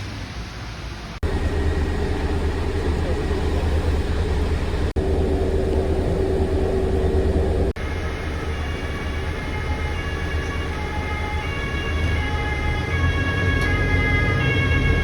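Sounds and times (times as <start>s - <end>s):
vehicle engine running: 1.2s - 7.8s.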